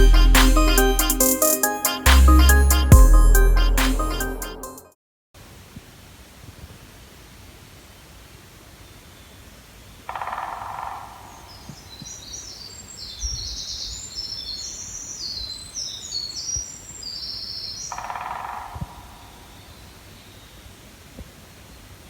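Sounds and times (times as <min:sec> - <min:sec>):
songbird singing: 0:10.2 - 0:20.7.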